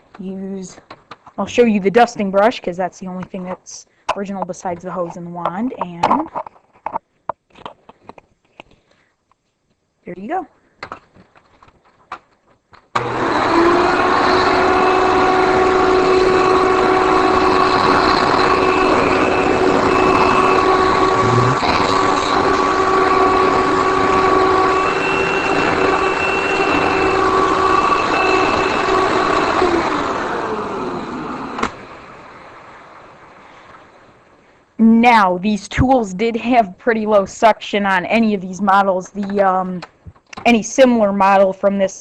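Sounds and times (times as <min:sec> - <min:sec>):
vacuum cleaner motor whine: 0:13.0 - 0:32.0.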